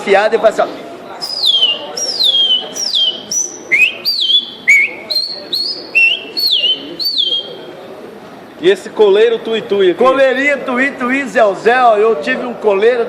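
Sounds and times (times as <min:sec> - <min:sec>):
man whistling birdsong: 0:01.2 - 0:07.6.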